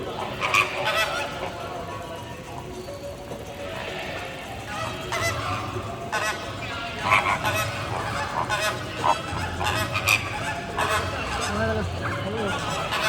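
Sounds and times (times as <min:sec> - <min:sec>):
birds honking: 0:00.0 - 0:02.6, 0:03.6 - 0:13.0.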